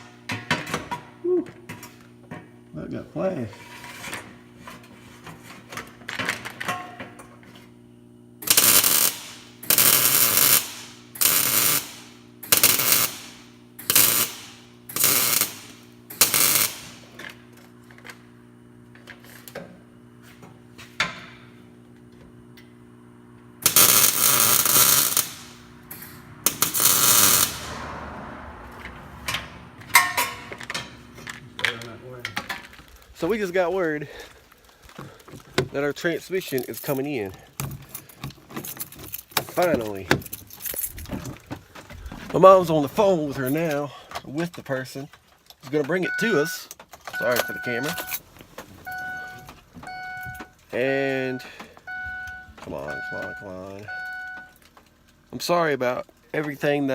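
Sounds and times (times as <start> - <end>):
steady low hum: 0.0 - 44.4
arc welding crackle: 8.4 - 18.4, 23.6 - 27.8, 29.9 - 35.0, 47.2 - 48.8.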